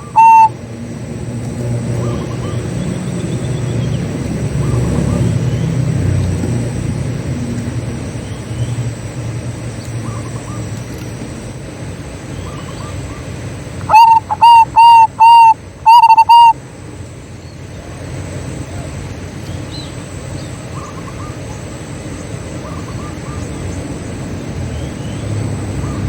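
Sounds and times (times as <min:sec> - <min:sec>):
faint short bird calls: 0:00.0 - 0:00.5, 0:12.4 - 0:16.6
dove cooing: 0:00.0 - 0:00.6, 0:12.5 - 0:16.6
low steady background hum: 0:00.0 - 0:26.0.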